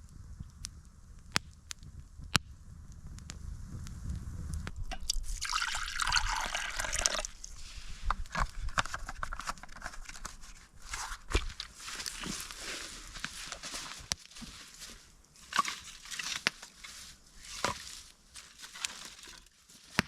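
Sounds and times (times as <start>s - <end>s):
liquid pouring: 4.9s - 7.6s.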